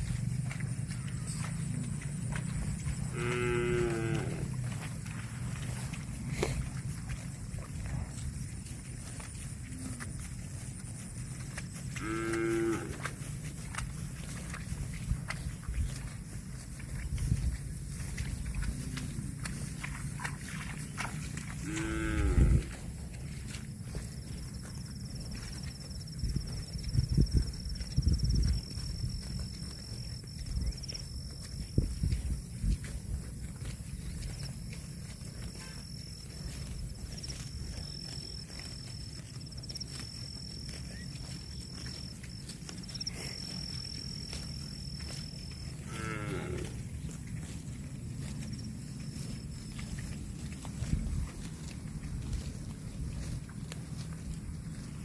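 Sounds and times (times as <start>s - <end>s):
insect buzzing and trilling: 2.8s - 4.8s
cow mooing: 3.0s - 4.8s, 11.9s - 13.2s, 21.5s - 22.8s, 45.7s - 46.8s.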